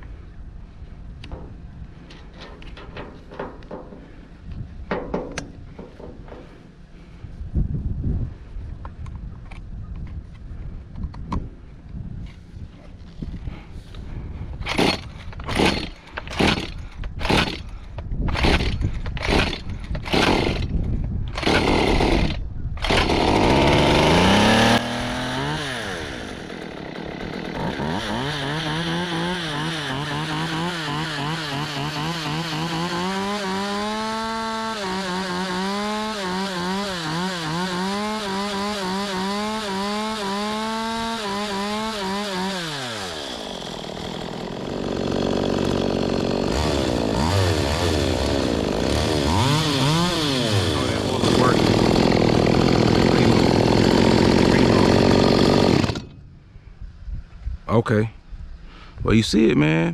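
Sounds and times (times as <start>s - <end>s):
chainsaw engine revving: 14.7s - 17.6s, 18.3s - 20.7s, 21.4s - 56.2s.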